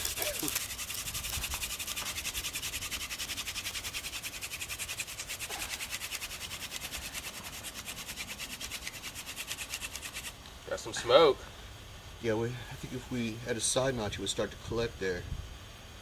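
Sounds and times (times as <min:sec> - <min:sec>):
hand drill rasping on fireboard: 0:00.0 - 0:10.4.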